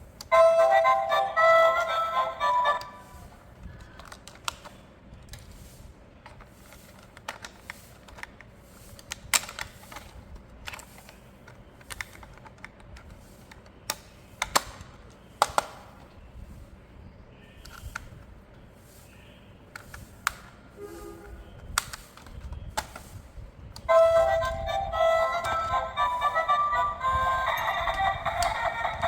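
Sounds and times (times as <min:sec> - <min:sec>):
hard plastic clicks and taps: 0:11.9 - 0:15.8.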